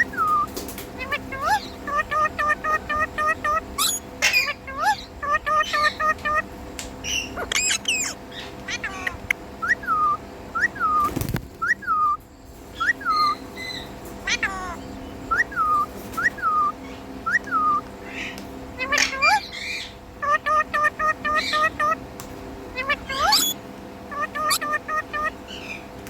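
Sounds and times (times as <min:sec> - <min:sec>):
parrot whistling calls: 0:00.0 - 0:06.5, 0:07.1 - 0:12.2, 0:12.8 - 0:17.9, 0:18.8 - 0:22.0, 0:22.8 - 0:25.8.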